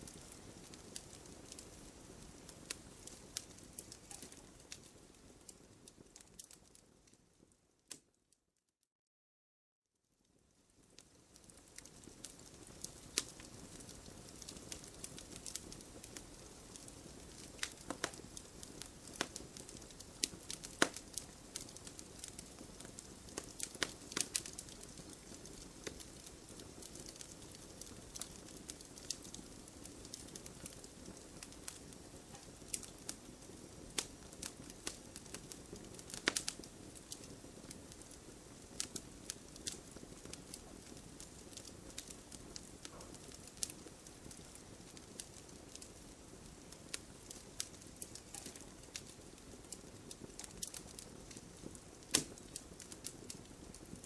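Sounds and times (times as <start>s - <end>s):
wood fire hissing: 0.0s - 6.9s, 10.7s - 54.0s
fire crackling and popping: 0.0s - 8.2s, 10.2s - 54.0s.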